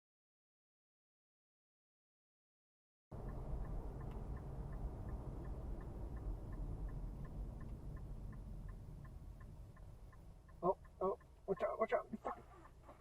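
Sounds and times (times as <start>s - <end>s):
car driving rumble: 3.1s - 13.0s
turn signal ticking: 3.1s - 13.0s.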